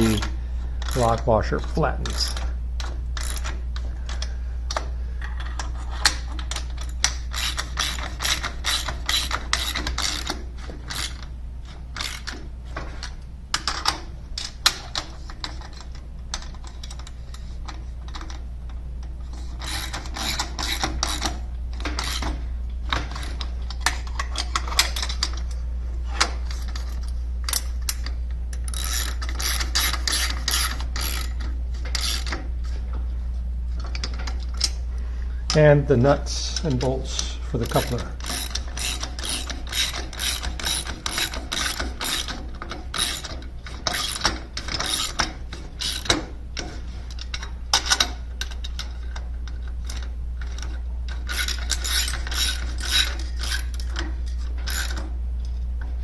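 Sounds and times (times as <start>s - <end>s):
low steady hum: 0.0s - 56.0s
socket ratchet clicking: 6.4s - 11.2s, 27.5s - 32.4s, 37.7s - 46.2s.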